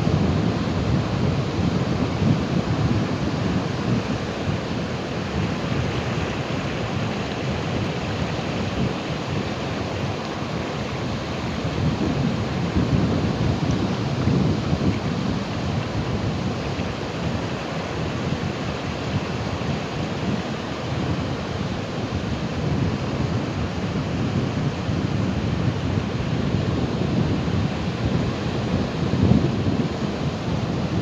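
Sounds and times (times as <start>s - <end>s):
ocean waves breaking: 0.0s - 24.0s.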